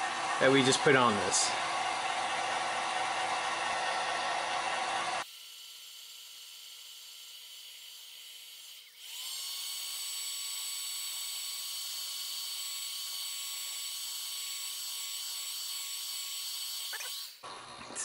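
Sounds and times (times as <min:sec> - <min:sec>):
heat gun fan whirring: 0:00.0 - 0:18.0.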